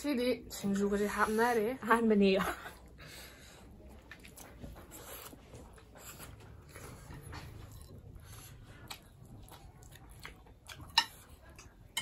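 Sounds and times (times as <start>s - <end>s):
chewing and mouth smacks: 3.8s - 12.0s.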